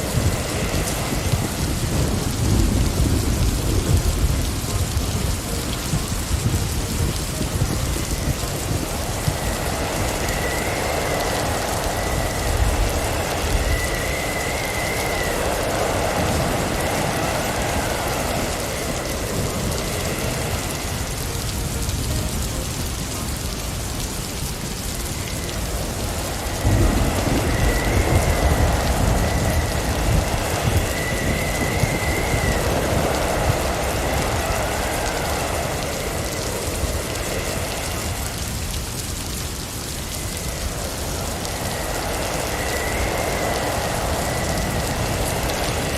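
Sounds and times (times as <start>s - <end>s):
low rumble: 0.0s - 45.9s
wind gusts: 0.0s - 45.9s
wavering high whistle: 9.2s - 19.2s, 25.0s - 38.6s.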